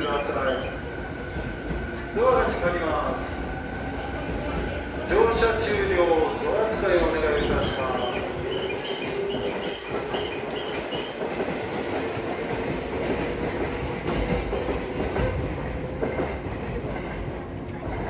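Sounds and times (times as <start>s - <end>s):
high hiss: 11.7s - 14.1s.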